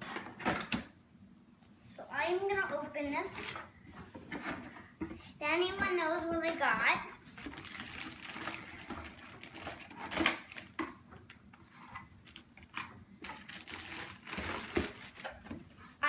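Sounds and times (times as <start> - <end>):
cardboard box being unpacked: 7.4 - 10.8, 11.7 - 15.4.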